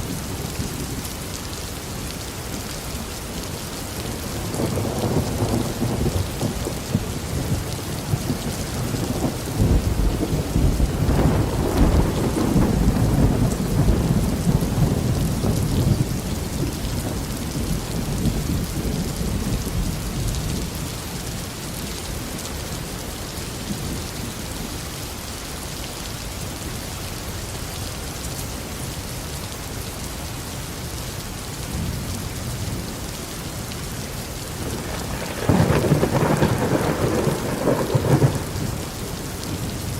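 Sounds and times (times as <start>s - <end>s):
heavy rain falling: 0.0s - 39.9s
thunder rumbling: 4.2s - 20.6s, 34.5s - 39.9s.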